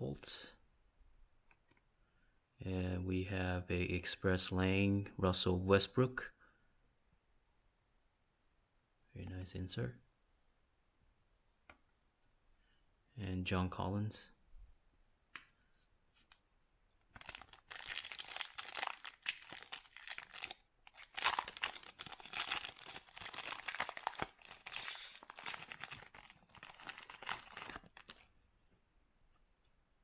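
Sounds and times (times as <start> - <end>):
foil wrapper tearing and crinkling: 17.2 - 28.3.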